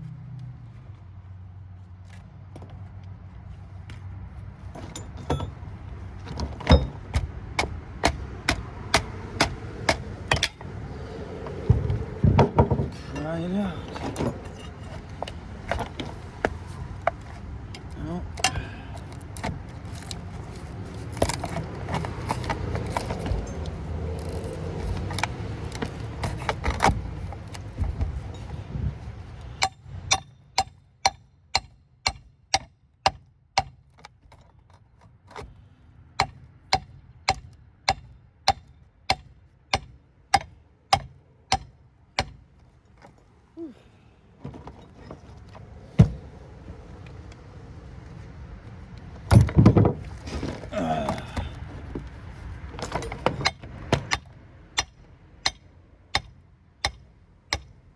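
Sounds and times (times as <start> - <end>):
metal clattering and scraping: 4.6 - 30.3, 44.4 - 47.2, 49.1 - 50.7, 51.6 - 54.2.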